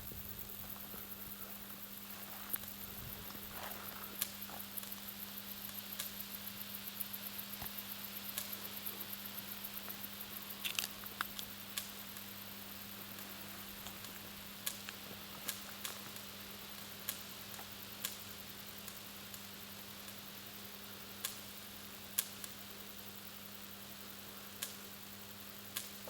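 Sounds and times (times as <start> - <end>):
faint crackling ticks: 0.1 - 26.0
sharp clicks of power line: 10.6 - 12.4, 13.1 - 20.2, 21.2 - 21.5.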